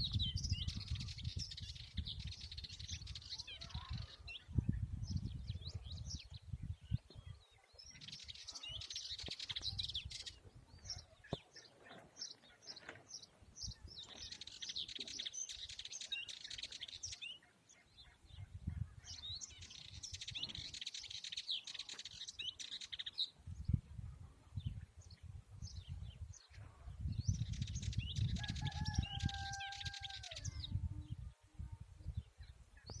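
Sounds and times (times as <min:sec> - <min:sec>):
goldfinch twittering song: 0:00.0 - 0:23.8, 0:24.6 - 0:31.2.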